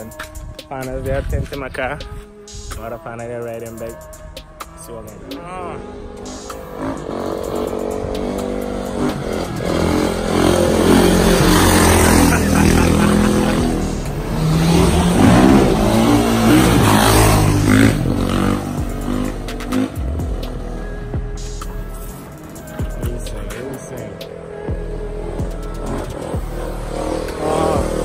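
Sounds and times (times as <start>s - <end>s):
dirt bike engine revving: 6.4s - 21.2s, 22.1s - 28.0s.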